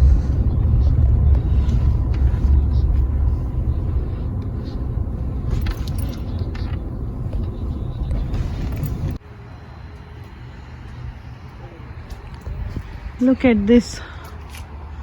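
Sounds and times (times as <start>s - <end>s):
quiet hum: 0.0s - 9.2s
truck engine and tyres rumbling: 0.0s - 15.0s.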